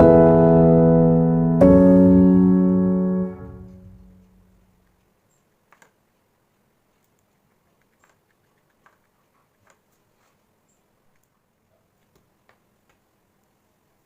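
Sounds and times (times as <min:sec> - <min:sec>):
sustained piano chord: 0:00.0 - 0:04.7.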